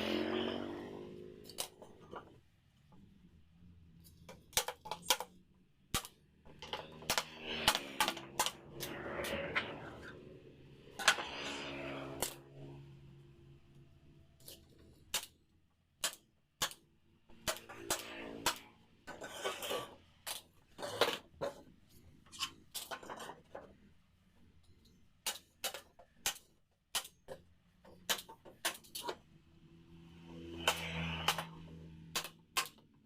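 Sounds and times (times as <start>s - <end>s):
wooden pieces clicking and knocking: 4.1s - 9.0s, 24.8s - 29.2s, 30.6s - 33.0s.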